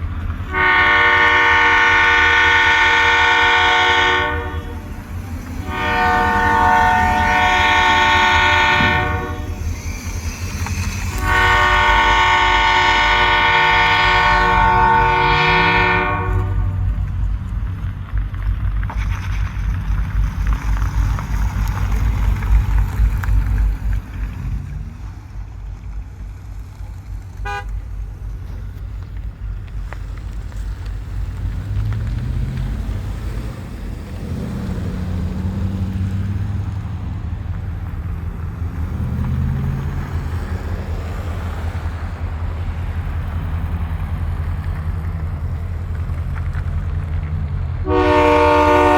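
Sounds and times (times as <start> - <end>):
low rumble of departing train: 0.0 - 48.9
locomotive horn blasts: 0.4 - 9.9, 11.0 - 16.9, 27.4 - 27.9, 47.8 - 48.9.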